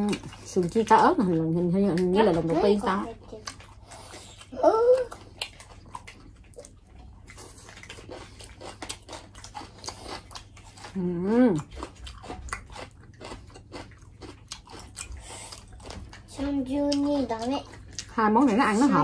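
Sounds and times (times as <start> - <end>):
crunchy chewing of food: 0.0 - 19.0.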